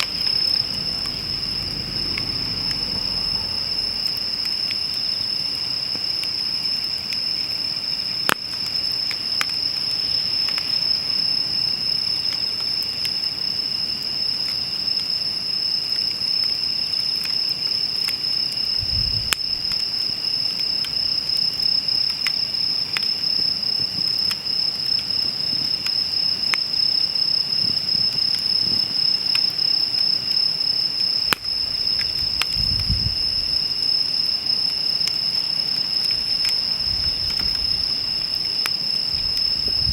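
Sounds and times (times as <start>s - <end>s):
campfire crackling: 0.0s - 39.9s
crickets trilling: 0.0s - 39.9s
sharp fire pops: 18.7s - 22.4s.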